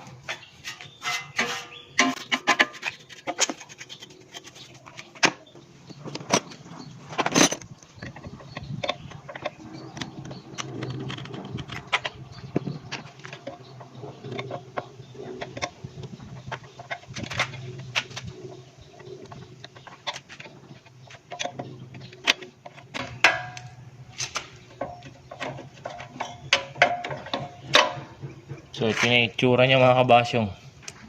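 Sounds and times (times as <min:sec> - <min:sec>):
hand tools clicking and knocking: 0:00.2 - 0:18.3, 0:19.0 - 0:29.3.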